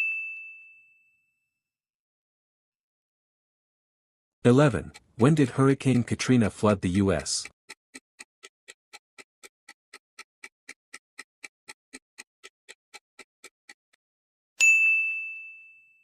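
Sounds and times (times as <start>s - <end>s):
clock ticking: 4.5s - 14.0s
bright bell ding: 14.6s - 16.0s.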